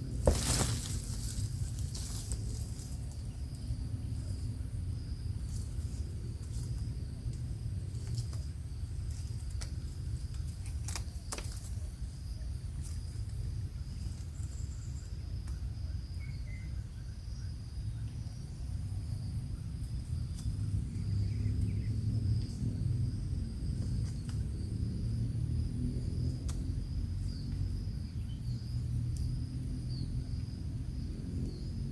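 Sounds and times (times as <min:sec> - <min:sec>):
low continuous rumble: 0:00.0 - 0:31.9.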